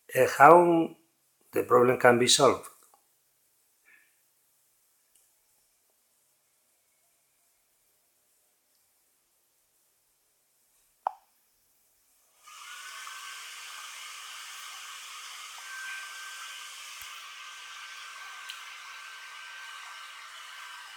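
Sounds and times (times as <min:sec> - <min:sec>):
steady hiss: 0:11.8 - 0:20.9.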